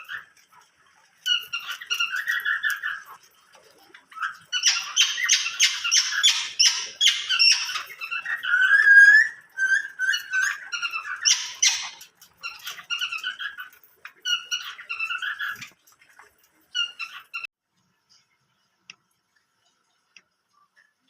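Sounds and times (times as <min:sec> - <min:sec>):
cage birds chirping: 0:00.0 - 0:17.5.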